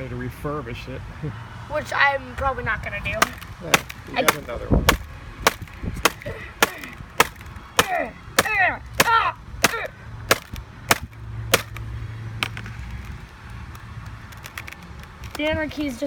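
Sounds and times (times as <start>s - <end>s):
hard blows on laptop keyboard: 3.2s - 11.8s.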